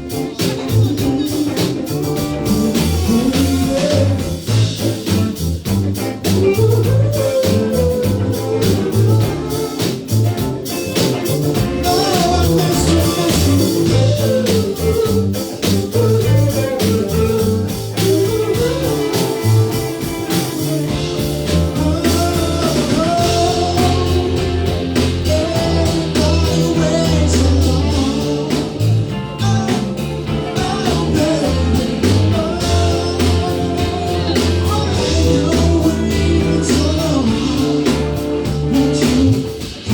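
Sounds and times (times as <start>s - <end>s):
person singing: 0.0s - 5.3s, 6.3s - 39.9s
bass line: 0.0s - 39.9s
drum kit beat: 0.0s - 39.9s
guitar: 0.0s - 39.9s.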